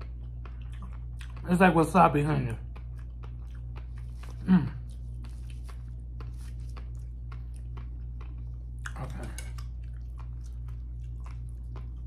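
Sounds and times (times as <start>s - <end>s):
steady low hum: 0.0s - 12.0s
wet chewing: 0.0s - 12.0s.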